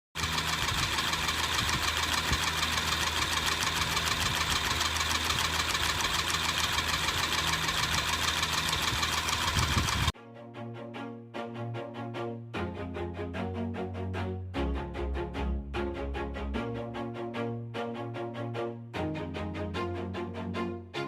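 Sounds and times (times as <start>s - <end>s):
fast even ticking: 0.2s - 10.1s
engine running steadily: 0.2s - 10.2s.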